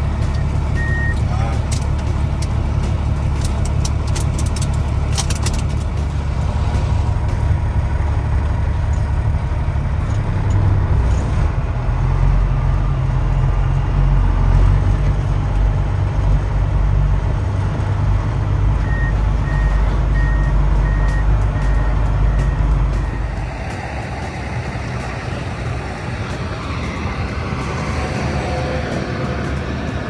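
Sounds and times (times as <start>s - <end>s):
diesel truck engine rumbling: 0.0s - 30.0s
reversing alarm beeping: 0.4s - 1.2s, 18.8s - 23.4s.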